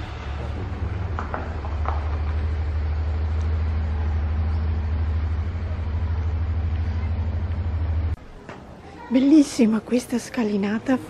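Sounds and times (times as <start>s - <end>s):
car engine low rumble: 0.0s - 8.2s.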